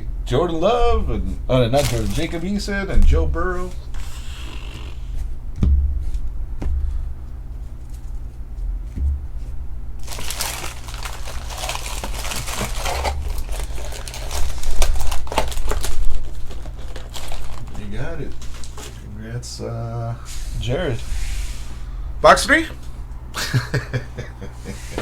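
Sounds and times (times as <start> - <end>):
plastic wrapping crinkling and tearing: 1.6 - 2.5, 10.0 - 19.1.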